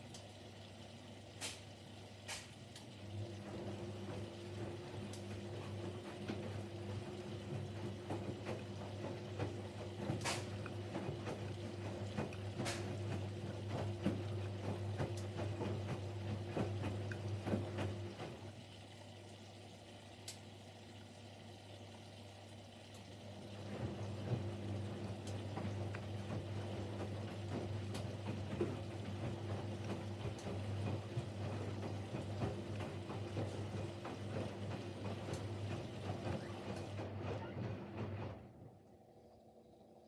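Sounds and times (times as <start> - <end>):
washing machine motor hum: 0.0 - 40.0
laundry sloshing in water: 23.4 - 38.1.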